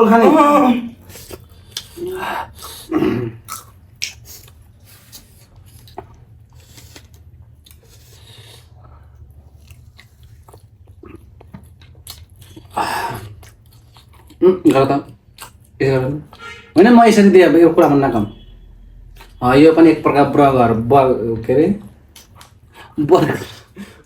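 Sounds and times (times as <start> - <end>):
person chewing food: 1.0 - 14.4, 15.1 - 16.4, 22.1 - 24.0.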